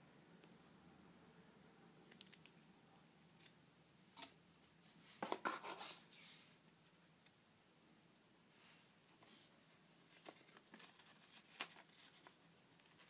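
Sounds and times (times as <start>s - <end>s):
plastic packaging rustling: 10.1s - 13.0s.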